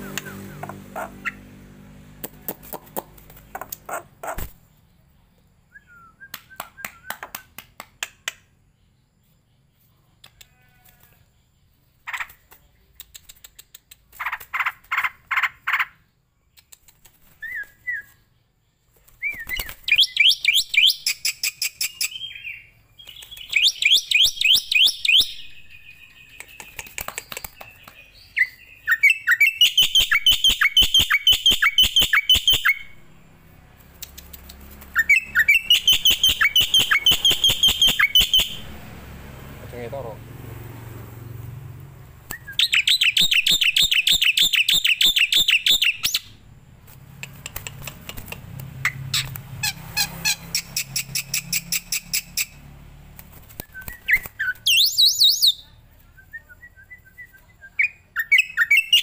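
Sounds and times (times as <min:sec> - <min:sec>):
caged birds calling: 0:00.0 - 0:07.2, 0:08.4 - 0:59.0
rapid sharp bird chattering: 0:02.4 - 0:04.9, 0:12.0 - 0:17.8, 0:19.3 - 0:33.1, 0:33.8 - 0:38.8, 0:42.3 - 0:46.4, 0:47.1 - 0:52.6.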